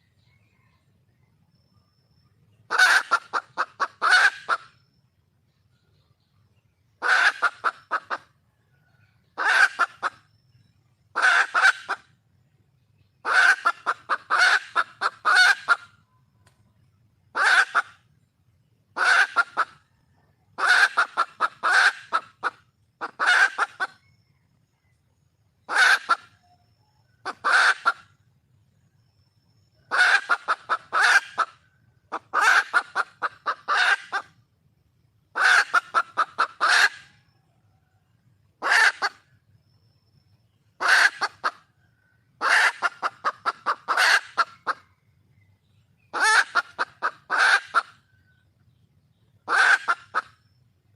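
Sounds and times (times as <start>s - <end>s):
hen clucking rapidly: 2.7s - 5.0s, 7.0s - 8.5s, 9.2s - 10.5s, 11.2s - 12.1s, 13.2s - 16.0s, 17.3s - 18.0s, 18.9s - 24.2s, 25.7s - 26.5s, 27.2s - 28.2s, 29.8s - 34.4s, 35.3s - 37.2s, 38.6s - 39.3s, 40.8s - 45.0s, 46.1s - 48.4s, 49.4s - 50.6s.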